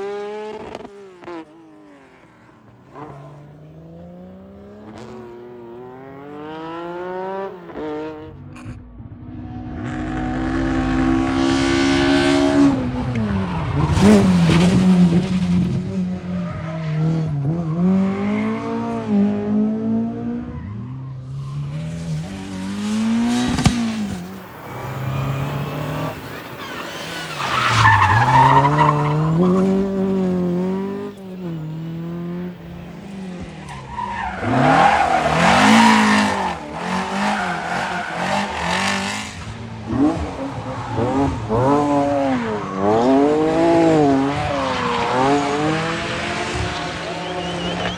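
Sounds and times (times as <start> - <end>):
rally car engine revving: 0.0 - 47.9
tyre squeal: 23.1 - 45.9, 46.5 - 47.9.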